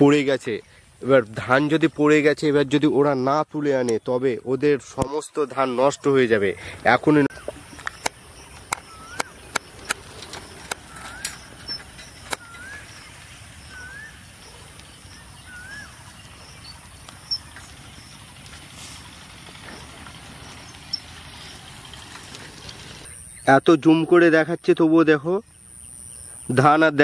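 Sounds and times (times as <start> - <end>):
sharp clicks: 7.8 - 12.8
bird rising whistle: 8.8 - 9.6, 10.9 - 14.3, 15.2 - 16.0.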